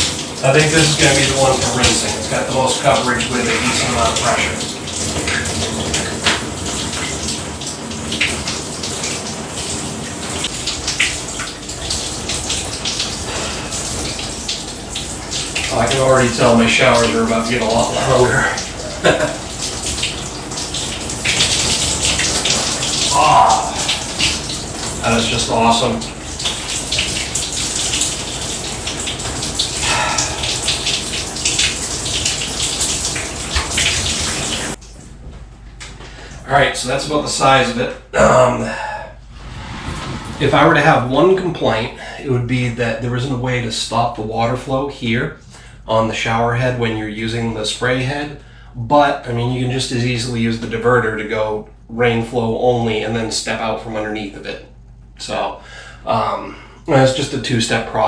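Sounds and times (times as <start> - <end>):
water splashing: 0.0 - 35.0
shower water spraying: 0.0 - 35.1, 39.2 - 41.8.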